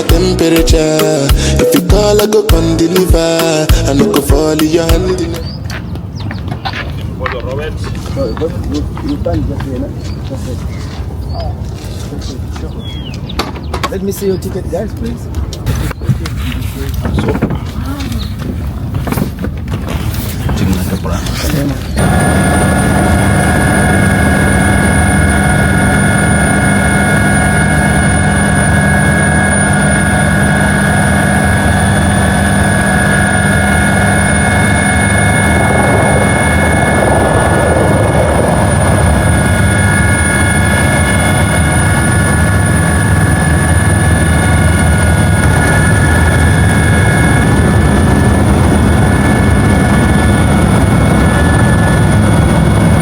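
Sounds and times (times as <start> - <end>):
high steady whine: 0.0 - 5.7, 21.5 - 53.0
helicopter engine and rotor drone: 3.2 - 11.8, 20.7 - 53.0.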